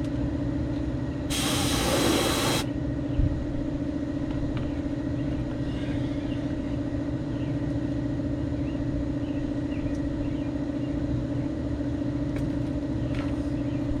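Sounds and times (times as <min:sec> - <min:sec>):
motor humming: 0:01.3 - 0:02.7.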